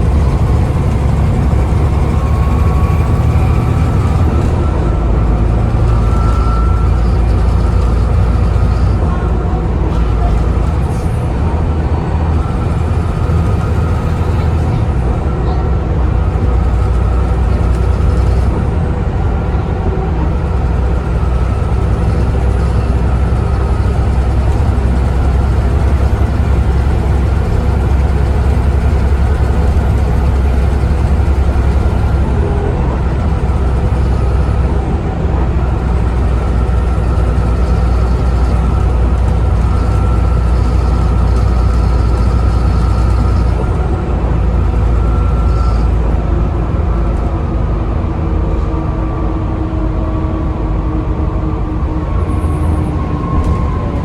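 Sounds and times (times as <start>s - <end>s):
bus engine running: 0.0s - 54.0s.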